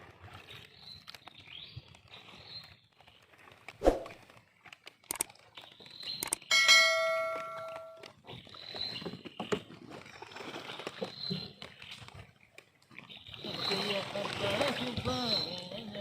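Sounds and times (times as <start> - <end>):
metallic bell-like ring: 6.5 - 8.1.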